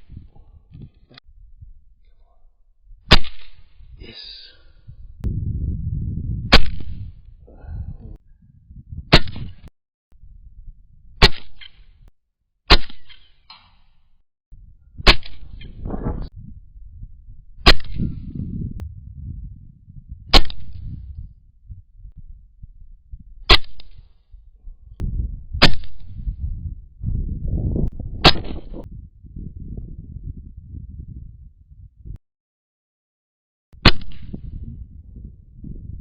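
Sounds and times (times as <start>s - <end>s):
rifle shots: 3.1s - 3.8s, 6.5s - 7.0s, 11.2s - 11.8s, 12.7s - 13.3s, 15.0s - 15.6s, 17.6s - 18.0s, 20.3s - 20.8s, 23.5s - 24.1s, 25.6s - 26.2s, 28.2s - 28.8s, 33.8s - 34.4s.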